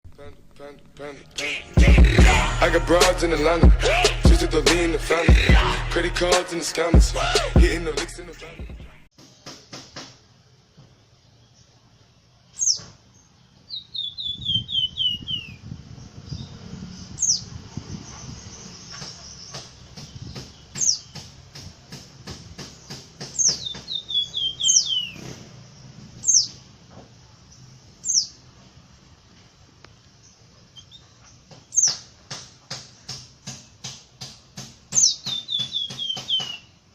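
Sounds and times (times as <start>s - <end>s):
songbird whistling: 13.7s - 15.6s, 23.4s - 25.2s, 34.9s - 36.8s
bird clicking calls: 34.9s - 36.7s.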